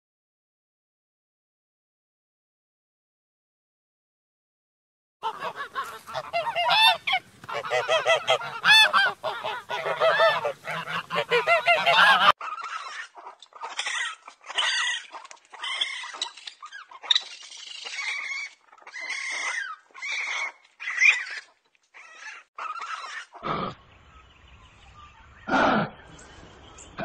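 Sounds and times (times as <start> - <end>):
geese honking: 5.2 - 23.5.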